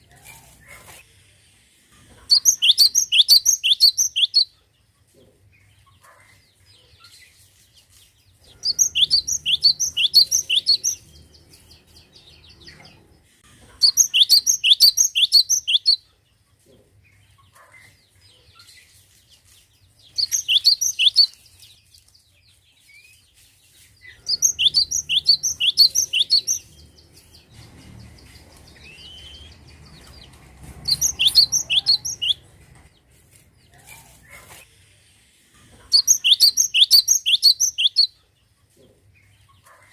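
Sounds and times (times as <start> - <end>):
bird singing sharp high notes: 8.6 - 11.0, 24.3 - 26.8, 30.9 - 32.4.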